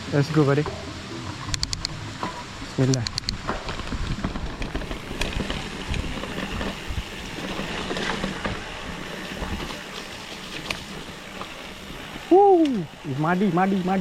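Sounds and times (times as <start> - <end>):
bike tyre noise: 0.0 - 14.0
wind buffeting microphone: 0.8 - 9.9
bike clicks and rattles: 1.4 - 11.7.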